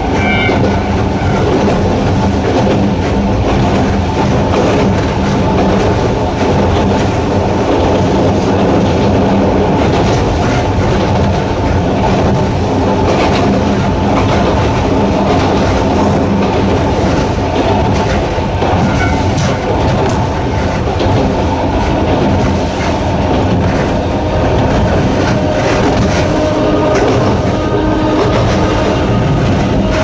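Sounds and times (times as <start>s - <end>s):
train running on rails: 0.0s - 30.0s
wheels clicking over track: 0.0s - 30.0s
low motor hum: 10.9s - 30.0s.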